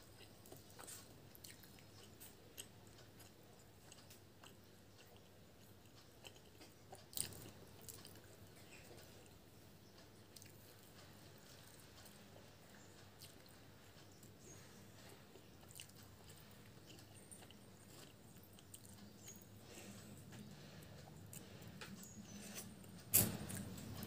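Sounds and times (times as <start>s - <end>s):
person chewing: 0.1s - 24.0s.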